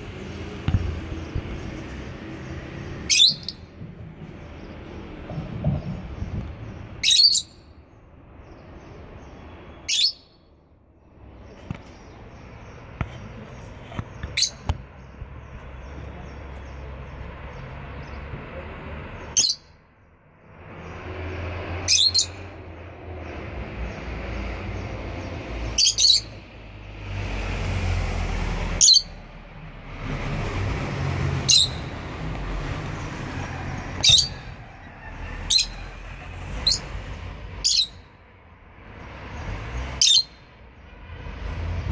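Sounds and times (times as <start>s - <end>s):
shrill bird chirps: 2.8s - 3.8s, 6.6s - 7.8s, 8.4s - 10.6s, 14.2s - 14.7s, 19.2s - 19.8s, 21.8s - 22.6s, 25.6s - 26.4s, 28.8s - 29.2s, 31.5s - 32.0s, 33.8s - 37.0s, 37.6s - 38.1s, 40.0s - 40.5s.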